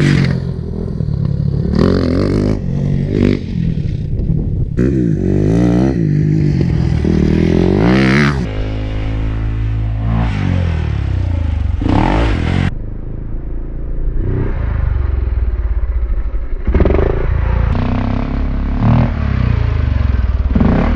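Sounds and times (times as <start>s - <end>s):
dirt bike engine revving: 0.0s - 3.8s, 4.8s - 12.7s, 16.6s - 20.9s.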